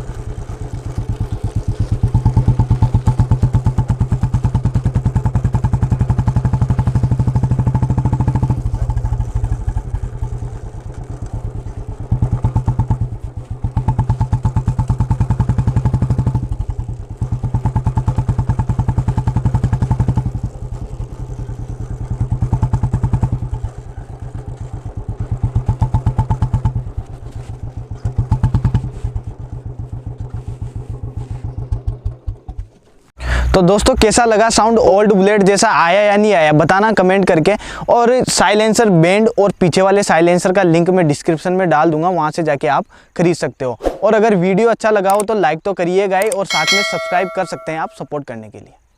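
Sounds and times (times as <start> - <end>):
motorcycle exhaust thumping: 0.0 - 33.1, 46.5 - 48.0.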